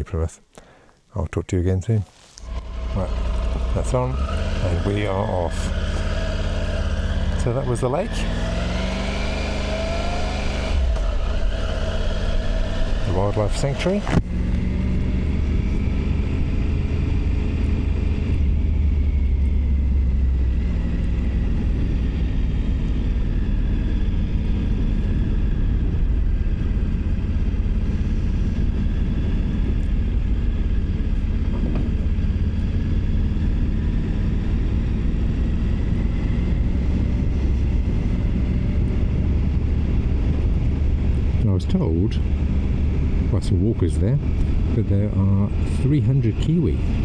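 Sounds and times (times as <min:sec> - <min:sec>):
motorcycle engine rumbling: 0:00.0 - 0:47.0
road and air noise: 0:00.0 - 0:47.0.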